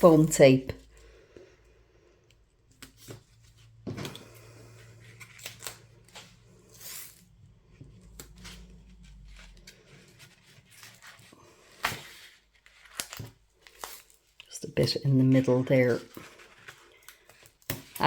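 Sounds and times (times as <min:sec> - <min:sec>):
foam tape rustling: 0:04.8 - 0:14.4.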